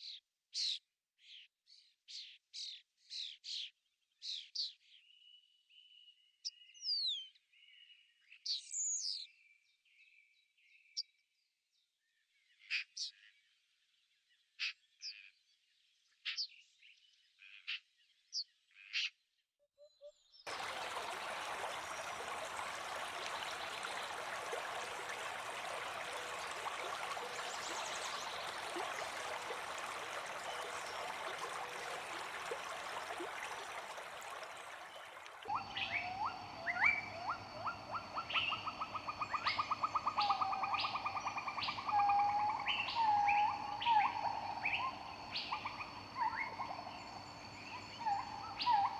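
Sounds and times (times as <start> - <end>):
bird calls and trills: 19.8 - 48.9
bird chirps: 20.0 - 48.9.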